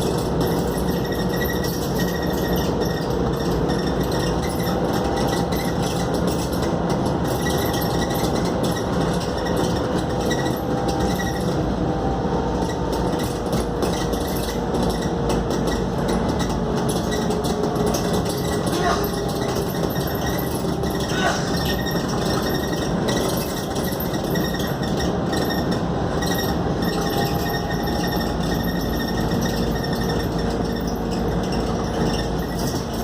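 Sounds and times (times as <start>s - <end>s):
bus engine drone: 0.0s - 33.0s
road and tyre noise: 0.0s - 33.0s
bodywork rattling: 12.6s - 33.0s.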